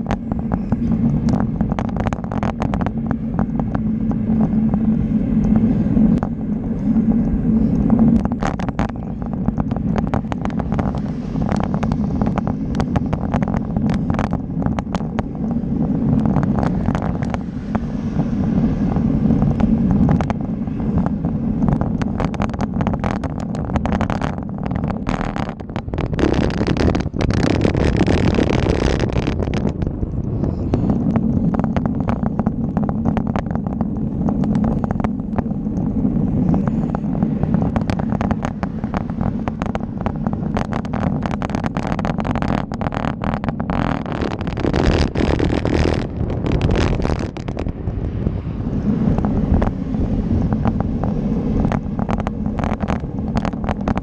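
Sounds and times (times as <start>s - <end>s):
bicycle clicks and rattles: 0.0s - 54.0s
bicycle riding rumble: 0.0s - 54.0s
wind on microphone: 0.0s - 54.0s.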